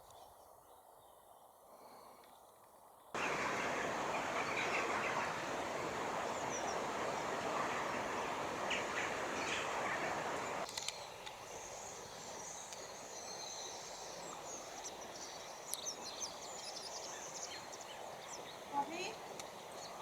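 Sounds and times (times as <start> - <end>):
outdoor background noise: 0.0 - 20.0
faint bird chirps: 3.2 - 20.0.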